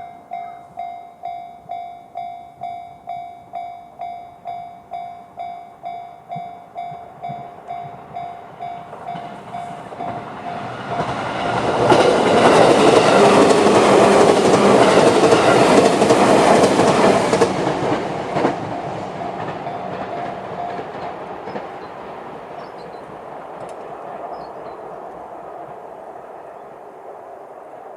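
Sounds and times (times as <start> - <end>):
level crossing warning alarm: 0.0 - 16.2, 18.4 - 21.9
train wheels clacking over joints: 6.3 - 26.1.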